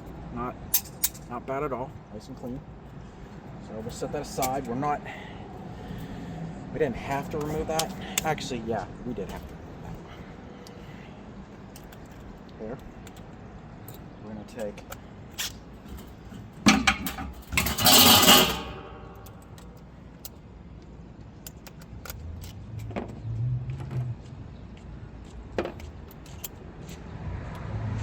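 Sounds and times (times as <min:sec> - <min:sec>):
metal hand tools clinking: 0:16.7 - 0:19.8
loud ringing metallic jangle: 0:17.6 - 0:19.7.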